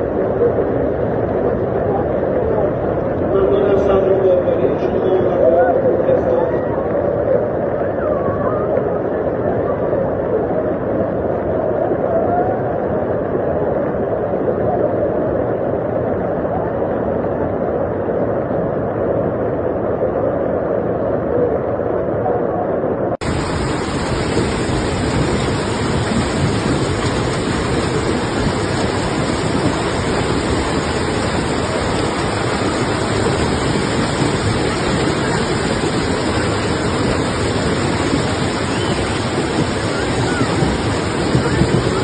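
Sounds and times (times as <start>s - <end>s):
heavy rain pouring: 23.2s - 42.0s.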